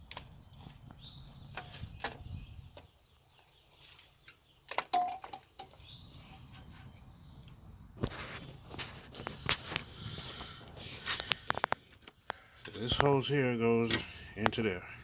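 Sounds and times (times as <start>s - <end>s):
bird chirping: 0.2s - 7.6s.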